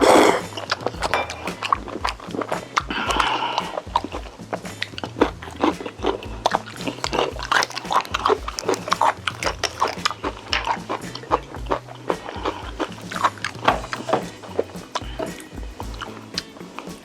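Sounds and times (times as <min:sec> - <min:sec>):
background music with bass line: 0:00.0 - 0:17.0.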